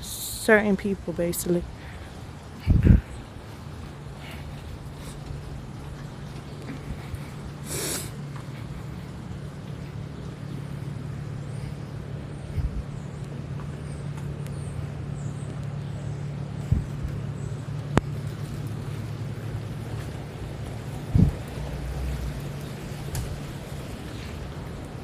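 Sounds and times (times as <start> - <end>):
low traffic rumble: 0.0 - 25.0
brief hiss: 7.6 - 8.1.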